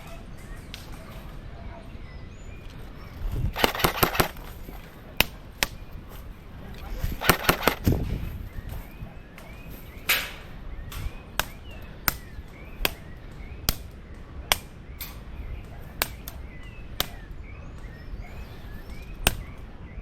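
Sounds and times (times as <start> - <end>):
birds chirping: 0.0 - 20.0
airsoft gun shots: 3.5 - 4.6, 7.1 - 8.2.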